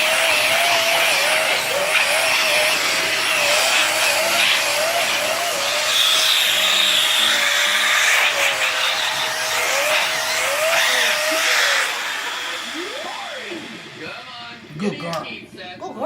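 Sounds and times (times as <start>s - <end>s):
vacuum cleaner running: 0.0s - 15.7s
higher whine: 10.0s - 15.6s.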